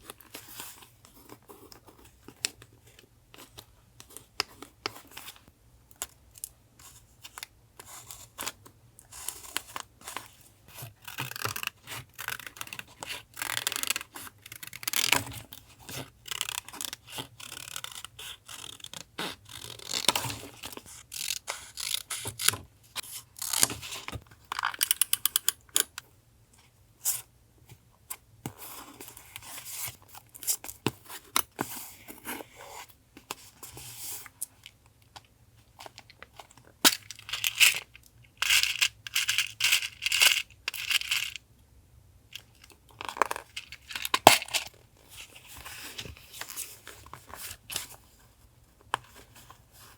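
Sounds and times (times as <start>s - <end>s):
scissors cutting paper: 21.1s - 22.6s.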